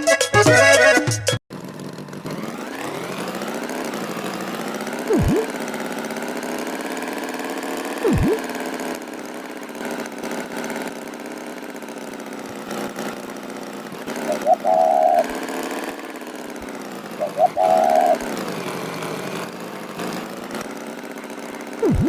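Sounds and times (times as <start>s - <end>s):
cartoon tractor engine idling: 0.0s - 22.0s
swooping tones: 5.1s - 5.6s, 8.0s - 8.5s.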